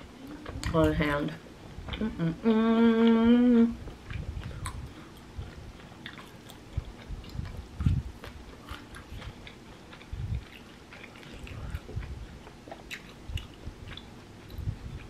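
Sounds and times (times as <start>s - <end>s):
person humming: 2.0s - 3.8s
close-up chewing: 3.8s - 15.0s.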